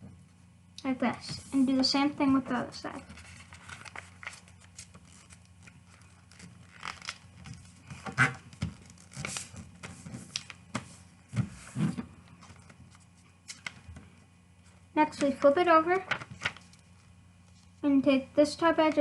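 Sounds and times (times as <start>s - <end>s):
paper being folded and creased: 2.9s - 10.9s, 15.2s - 17.8s.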